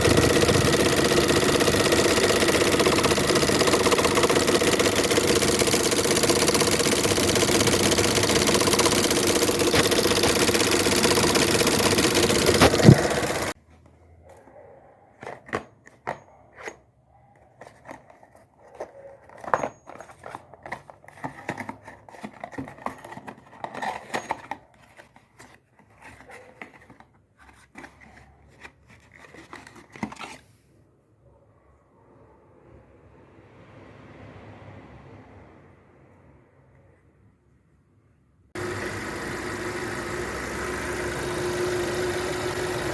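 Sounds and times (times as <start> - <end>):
car engine running: 0.0 - 13.6, 38.6 - 42.9.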